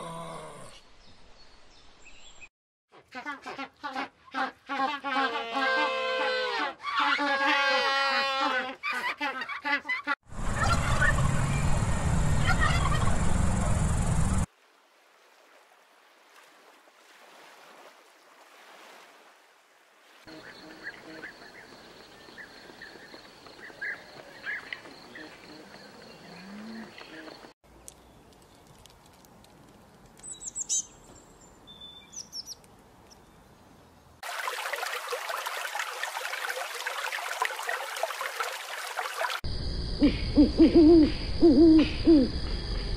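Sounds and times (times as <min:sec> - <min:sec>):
turkeys gobbling: 0:08.8 - 0:11.4, 0:12.4 - 0:13.3.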